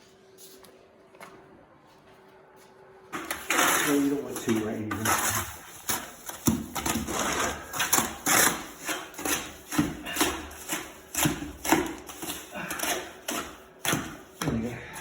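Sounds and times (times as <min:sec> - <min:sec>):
tool scraping wet mortar: 0:03.2 - 0:15.0.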